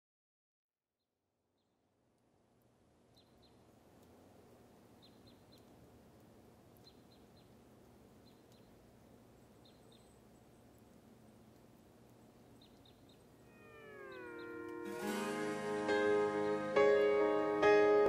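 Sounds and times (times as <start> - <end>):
low outdoor background noise: 1.2 - 18.0
high bird chirps: 12.5 - 16.9.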